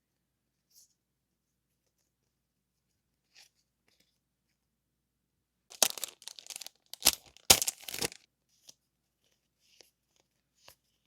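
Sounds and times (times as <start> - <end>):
packaging crinkling and tearing: 5.7 - 8.2.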